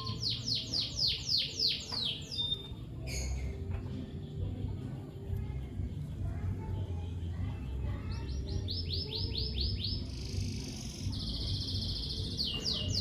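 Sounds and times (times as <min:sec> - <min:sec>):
lovebird chirping: 0:00.0 - 0:03.5.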